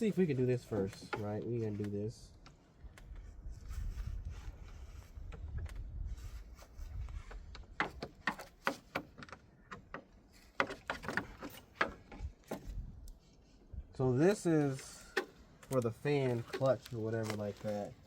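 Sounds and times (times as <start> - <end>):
sharp clicks and knocks: 7.4 - 12.8.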